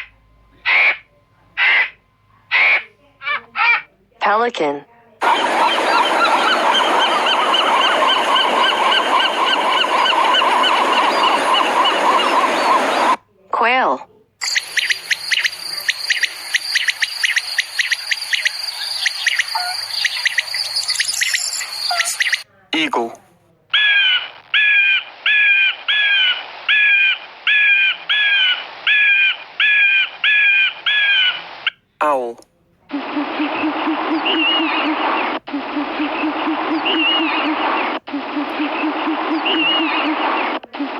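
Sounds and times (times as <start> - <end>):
pelicans honking: 5.2 - 13.2, 14.4 - 22.4, 32.9 - 40.3
bird's harsh call: 14.4 - 22.4.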